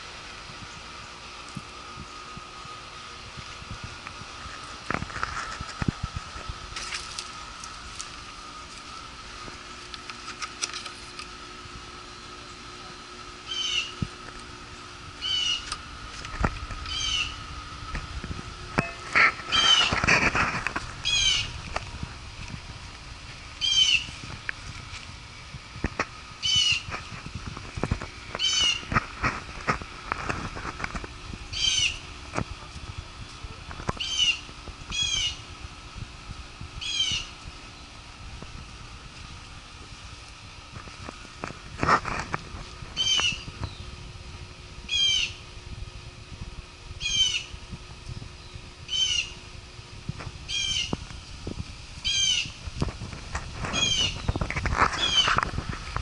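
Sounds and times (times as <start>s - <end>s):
chickens squawking: 16.9s - 17.4s, 21.0s - 21.6s.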